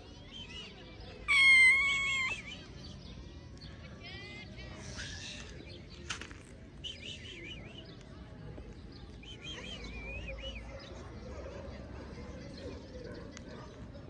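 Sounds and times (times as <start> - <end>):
outdoor background noise: 0.0 - 14.0
small bird warbling: 1.3 - 2.6.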